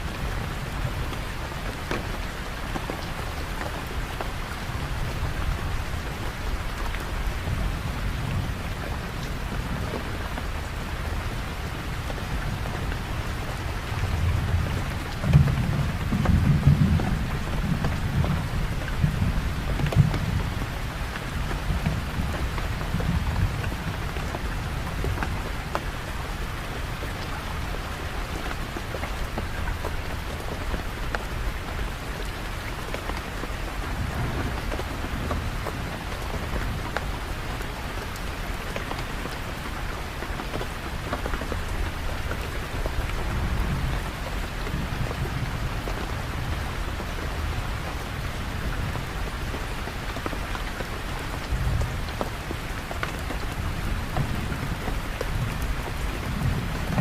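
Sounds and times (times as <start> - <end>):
heavy rain spattering: 0.0 - 57.0
rolling thunder rumbles: 33.9 - 36.8, 53.7 - 57.0.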